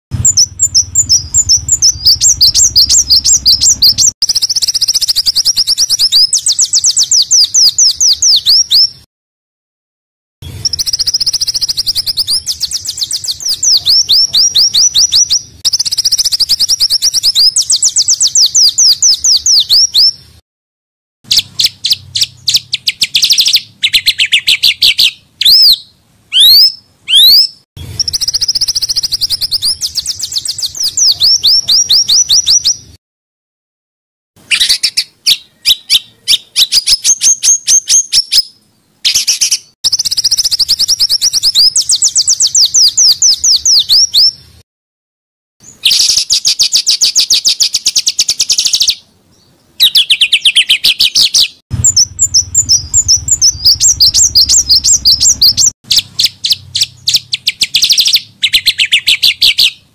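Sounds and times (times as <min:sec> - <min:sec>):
songbirds rapid trilling: 0:00.1 - 0:08.9, 0:10.4 - 0:20.2, 0:26.3 - 0:33.0, 0:45.7 - 0:59.9
sweeping bird whistles: 0:00.2 - 0:09.1, 0:10.4 - 0:20.2, 0:21.3 - 0:33.0, 0:34.5 - 0:44.4, 0:45.6 - 0:59.8.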